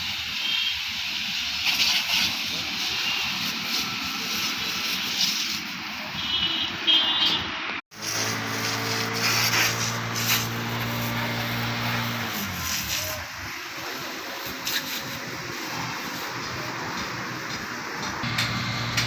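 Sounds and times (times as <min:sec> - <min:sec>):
car wash spray hiss: 0:00.0 - 0:07.3, 0:07.9 - 0:19.0
motor hum: 0:18.2 - 0:19.0.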